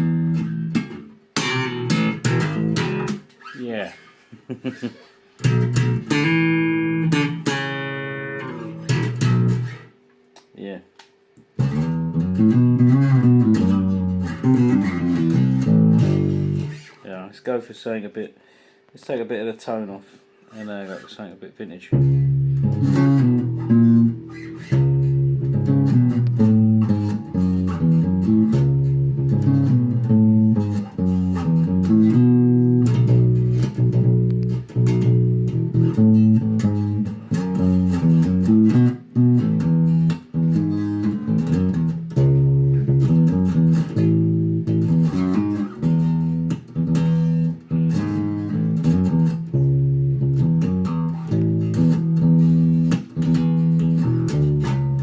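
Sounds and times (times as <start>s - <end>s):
electric bass line: 0.0s - 3.3s, 5.4s - 9.9s, 11.5s - 17.0s, 21.9s - 55.0s.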